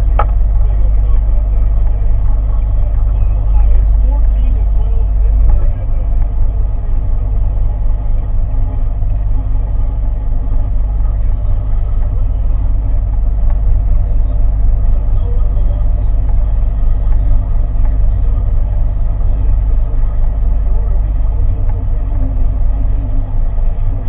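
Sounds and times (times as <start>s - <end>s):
boat engine rumbling: 0.0s - 24.0s.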